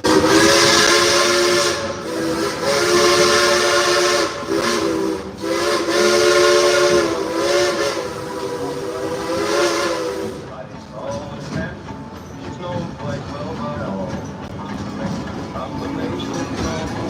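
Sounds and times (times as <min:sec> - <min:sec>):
steam locomotive chime whistle: 0:00.0 - 0:10.5
escaping steam hissing: 0:00.0 - 0:10.7.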